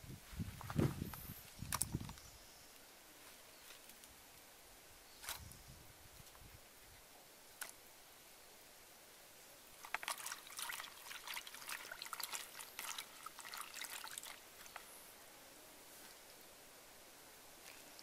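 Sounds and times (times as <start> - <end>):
water splashing in plastic bowl: 9.8 - 14.9.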